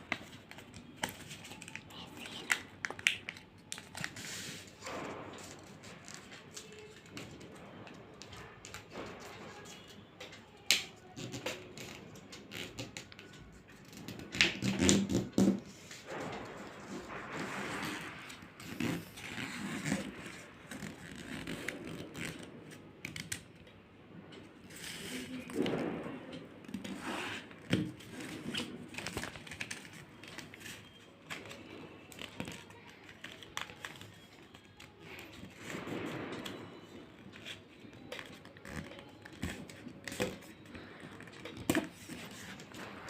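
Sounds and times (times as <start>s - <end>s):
paper being folded by hand: 0.0s - 9.9s, 26.9s - 36.6s.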